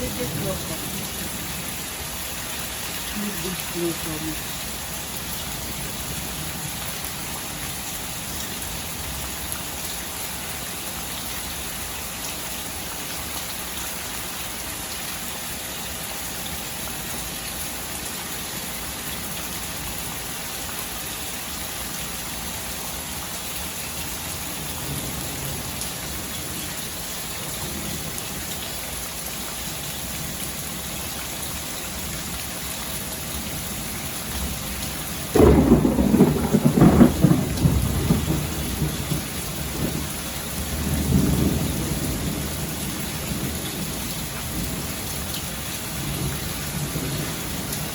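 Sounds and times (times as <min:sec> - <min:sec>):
steady rain pattering: 0:00.0 - 0:47.9
loud thunder clap: 0:35.4 - 0:40.0.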